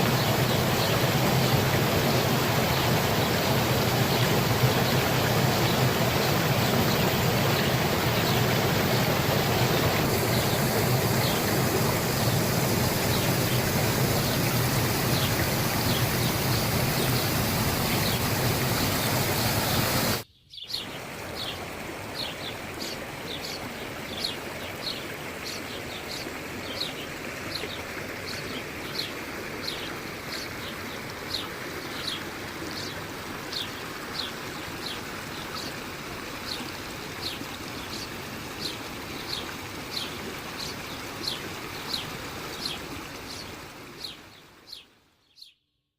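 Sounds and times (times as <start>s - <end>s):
spring water gushing and splashing: 0.0s - 20.2s, 20.8s - 44.8s.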